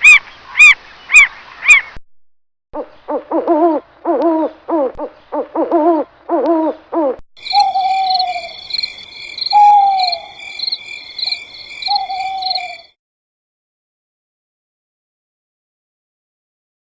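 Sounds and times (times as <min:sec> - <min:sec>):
insects trilling: 0:07.4 - 0:12.9.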